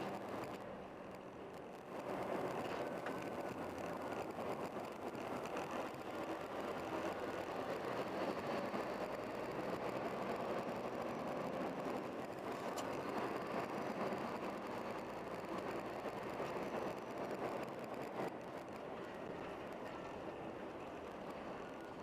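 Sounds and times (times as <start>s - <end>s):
vehicle running rumble and hiss: 0.0s - 22.0s.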